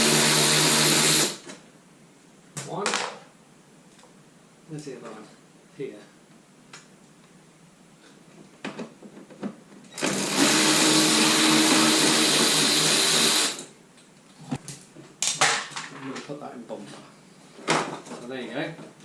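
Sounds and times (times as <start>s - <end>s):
power tool motor running: 0.0s - 1.4s, 10.0s - 13.7s.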